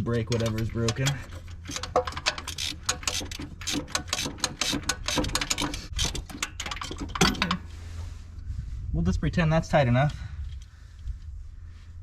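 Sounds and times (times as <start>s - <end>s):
ratchet wrench clicking: 0.2s - 6.9s.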